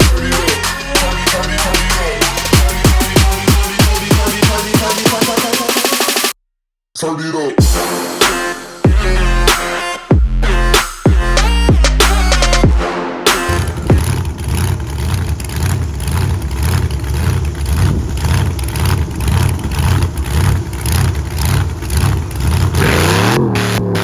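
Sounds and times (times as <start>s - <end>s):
truck engine revving: 0.0s - 6.2s, 10.4s - 12.7s, 13.3s - 24.0s.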